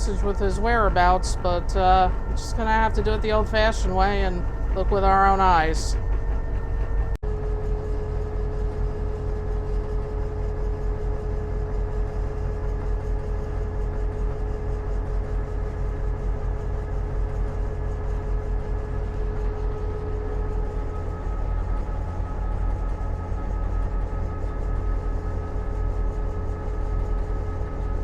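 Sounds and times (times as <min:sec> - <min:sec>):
diesel locomotive engine rumble: 0:00.0 - 0:07.2, 0:18.6 - 0:28.0
steady hum: 0:00.0 - 0:28.0.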